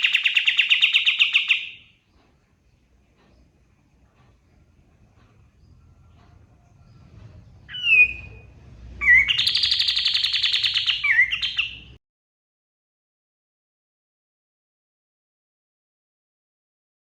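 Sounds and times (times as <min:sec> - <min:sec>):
songbird rattling trill: 0:00.0 - 0:02.0, 0:07.6 - 0:08.4, 0:09.0 - 0:12.0.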